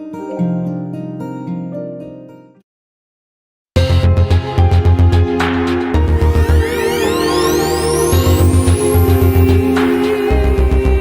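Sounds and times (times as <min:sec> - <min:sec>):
soft plucked instrumental music: 0:00.0 - 0:02.6.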